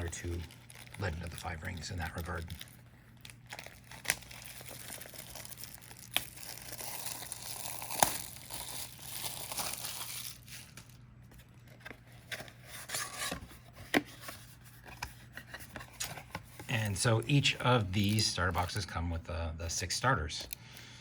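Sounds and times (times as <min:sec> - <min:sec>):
packaging crinkling and tearing: 0:00.0 - 0:13.4.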